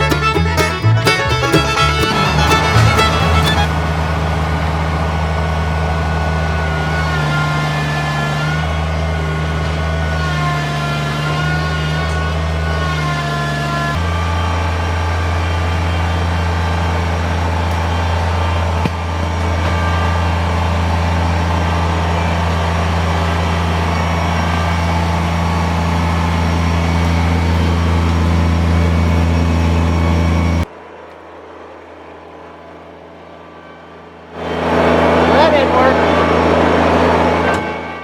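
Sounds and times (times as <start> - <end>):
tractor diesel engine running: 0.0 - 3.7.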